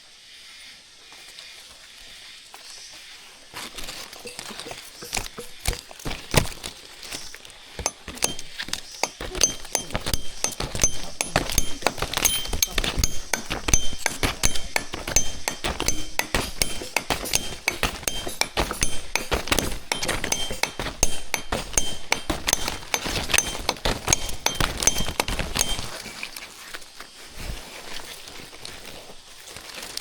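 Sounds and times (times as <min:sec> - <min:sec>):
sharp clinks and knocks: 0:04.0 - 0:26.3
metallic ringing tones: 0:04.2 - 0:06.0, 0:07.8 - 0:26.2.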